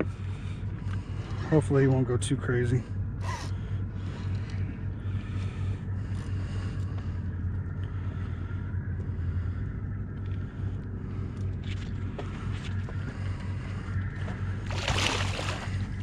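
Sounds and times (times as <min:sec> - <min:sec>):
boat engine idling: 0:00.0 - 0:16.0.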